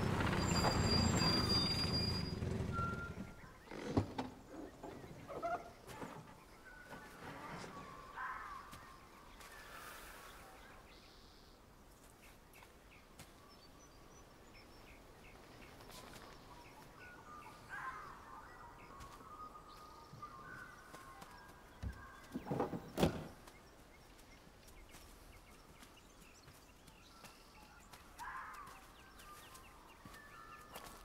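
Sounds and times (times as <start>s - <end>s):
birds warbling calls: 0.0s - 31.0s
faint outdoor ambience: 0.0s - 31.0s
small ticking bird calls: 8.1s - 31.0s.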